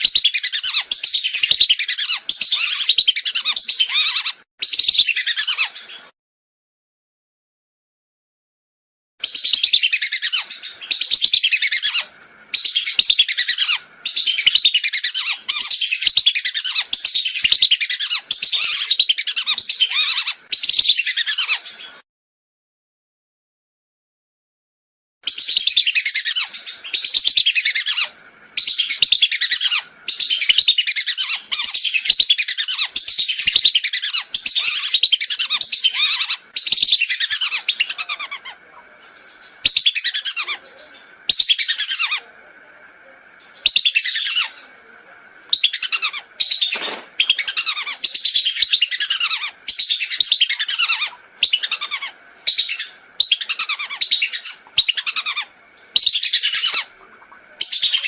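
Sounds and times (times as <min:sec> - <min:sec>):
whistling ducks calling: 0:00.0 - 0:05.8, 0:25.3 - 0:42.6, 0:43.6 - 0:44.7, 0:45.5 - 0:58.0.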